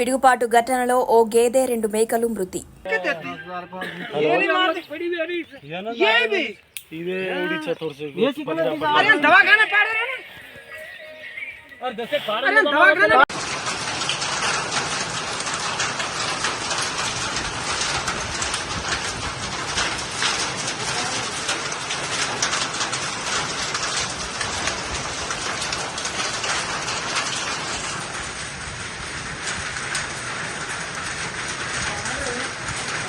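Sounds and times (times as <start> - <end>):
heavy rain on hard surfaces: 13.2 - 33.0.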